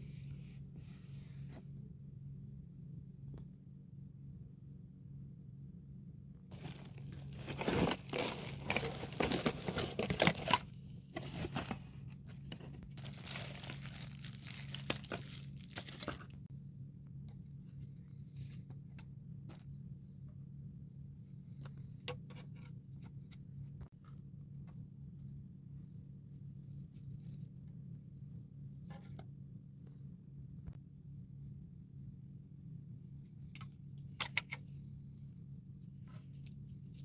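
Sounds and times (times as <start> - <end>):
packaging crinkling and tearing: 6.5 - 16.4
rustles and clicks: 6.5 - 16.5.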